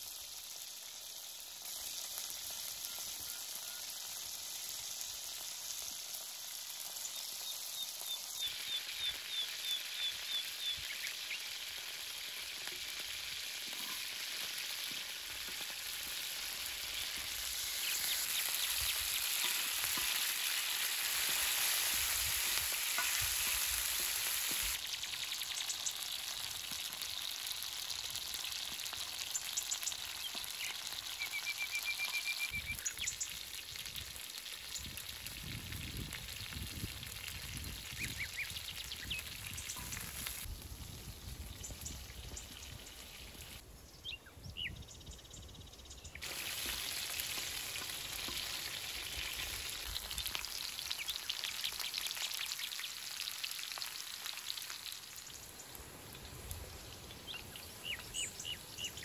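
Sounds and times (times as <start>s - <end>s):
food sizzling in pan: 0.0s - 43.6s, 46.2s - 59.0s
birds calling: 16.6s - 21.8s.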